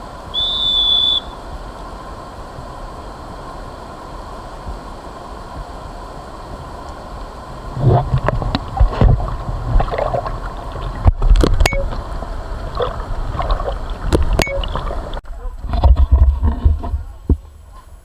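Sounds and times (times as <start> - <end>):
river water: 0.0 - 18.0
wind: 0.0 - 18.0
water splashes: 2.4 - 17.4
knocks and thumps: 7.8 - 12.0, 15.6 - 17.5.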